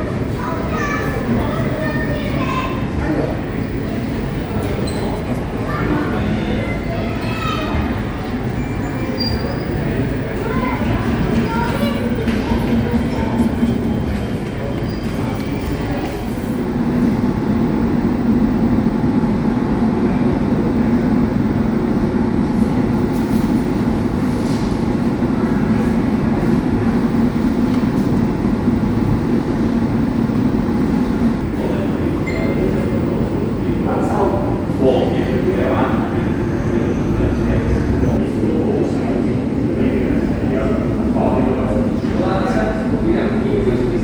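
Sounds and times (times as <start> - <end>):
steady mechanical rumble: 0.0 - 44.0.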